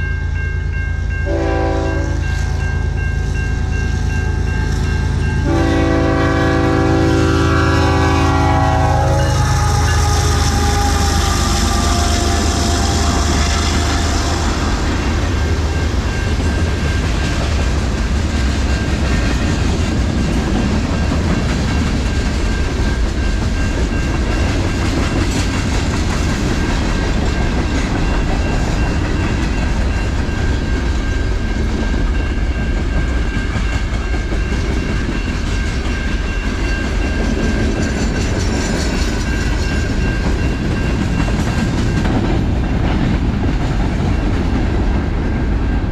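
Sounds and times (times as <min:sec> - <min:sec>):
train passing: 0:00.0 - 0:45.9
locomotive horn: 0:01.2 - 0:02.4, 0:05.4 - 0:15.1.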